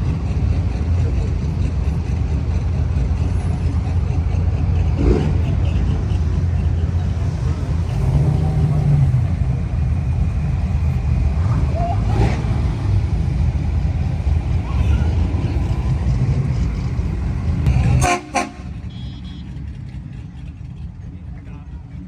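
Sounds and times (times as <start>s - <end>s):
traffic rumble: 0.0s - 22.0s
car horn tooting: 17.8s - 19.6s.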